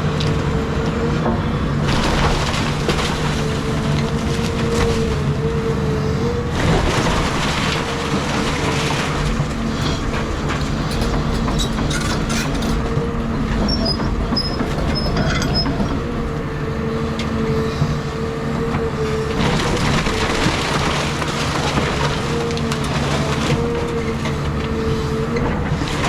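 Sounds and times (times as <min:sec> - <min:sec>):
excavator engine humming: 0:00.0 - 0:26.0
breaking wood and debris clatter: 0:01.8 - 0:05.6, 0:06.5 - 0:13.0, 0:19.3 - 0:26.0.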